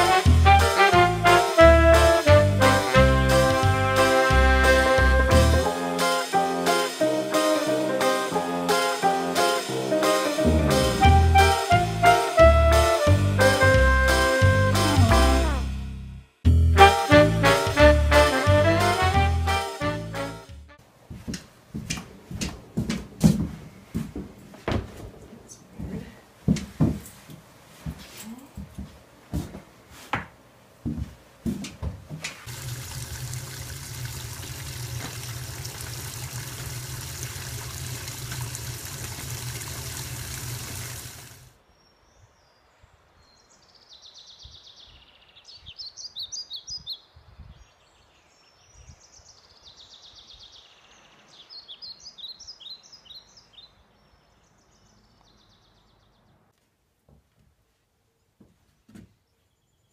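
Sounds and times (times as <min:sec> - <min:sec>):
laundry rustling and knocking: 0:21.1 - 0:32.5
water rushing with low hum: 0:32.5 - 0:41.5.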